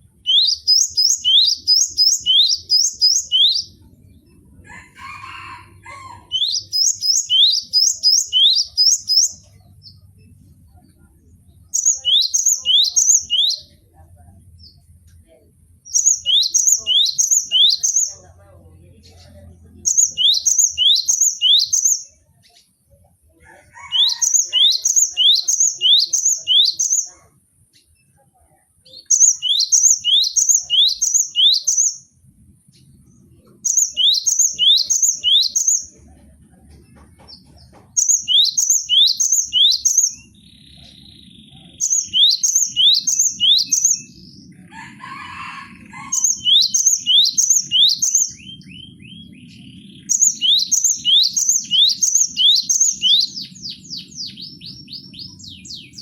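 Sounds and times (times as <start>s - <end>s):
bird singing high whistled notes: 0.2s - 3.8s, 16.0s - 18.1s, 19.9s - 22.0s, 29.1s - 32.1s, 33.7s - 35.8s, 41.8s - 44.2s, 46.2s - 56.0s.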